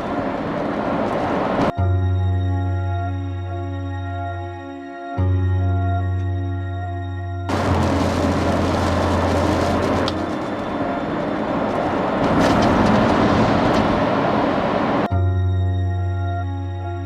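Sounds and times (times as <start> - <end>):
rushing vehicle noise: 0.0 - 1.8, 7.5 - 15.1.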